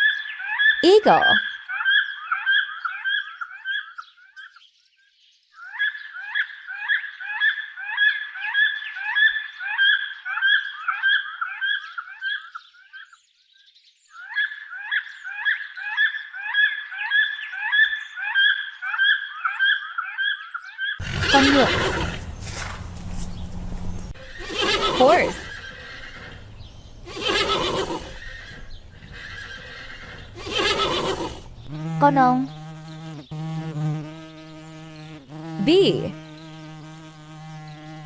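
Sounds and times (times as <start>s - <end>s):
eagle calling: 21.0s - 32.6s.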